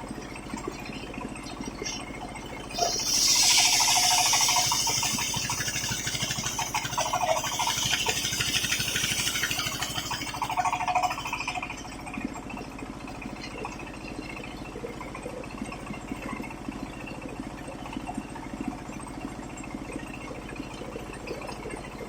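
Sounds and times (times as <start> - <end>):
engine and spinning blade: 0.0 - 22.0
saw blade rasping through wood: 2.8 - 10.4.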